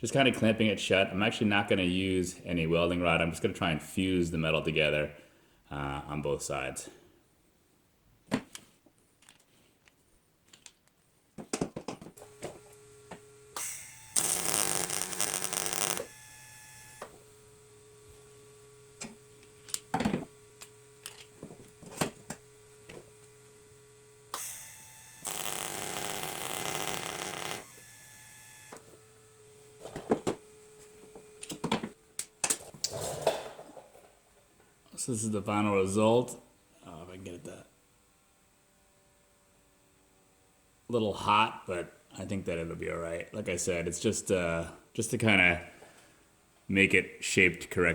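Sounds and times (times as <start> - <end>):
arc welding: 12.2 - 28.8
electric welder humming: 12.2 - 31.6.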